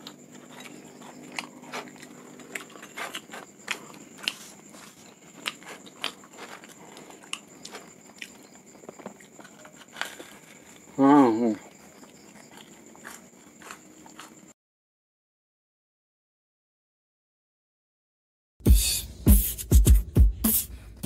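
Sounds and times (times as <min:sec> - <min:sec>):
crunchy chewing: 0:00.0 - 0:14.6.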